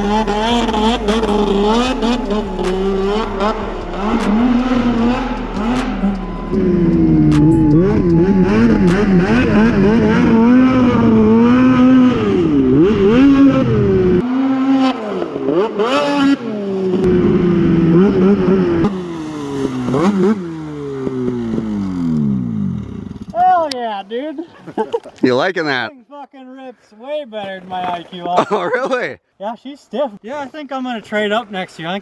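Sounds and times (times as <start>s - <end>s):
snowmobile engine revving: 0.0s - 23.3s.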